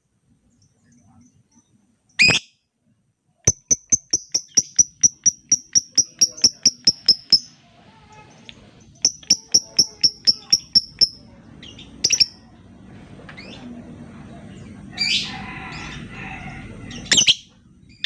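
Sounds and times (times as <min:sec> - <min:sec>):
bird chattering trill: 0:03.5 - 0:07.6, 0:08.9 - 0:12.5.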